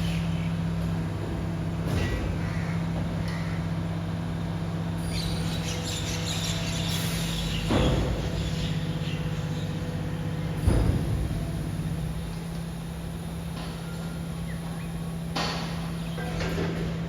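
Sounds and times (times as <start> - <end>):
hydraulic hum: 0.0 - 17.0
compactor thump: 7.6 - 8.7, 10.4 - 12.4.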